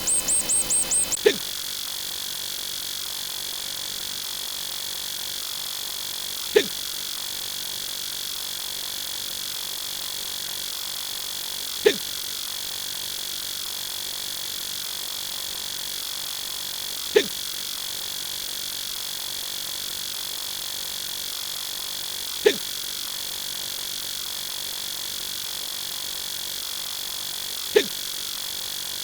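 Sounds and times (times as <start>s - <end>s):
faint high whine: 0.0s - 1.4s
man hiccuping: 6.6s - 6.8s, 11.8s - 12.1s, 17.2s - 17.4s, 27.8s - 28.0s.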